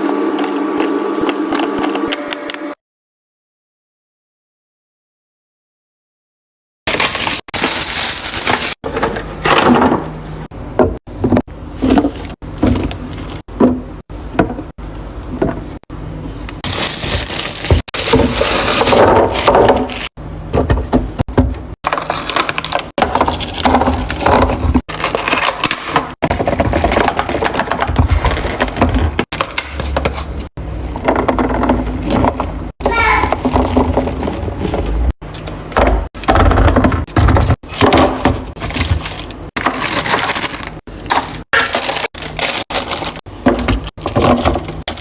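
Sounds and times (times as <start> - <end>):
packaging crinkling and crunching: 6.9 - 8.8, 16.4 - 20.1, 21.8 - 28.8, 37.6 - 45.0
items knocking and clattering: 6.9 - 15.8, 16.6 - 45.0.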